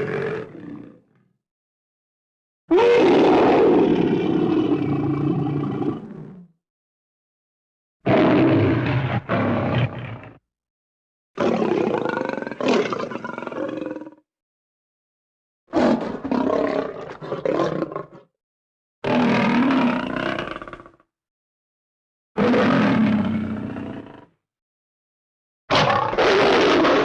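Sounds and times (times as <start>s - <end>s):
lion roaring: 0.0s - 1.0s, 2.7s - 6.4s, 8.1s - 10.4s, 22.4s - 24.3s, 25.7s - 27.0s.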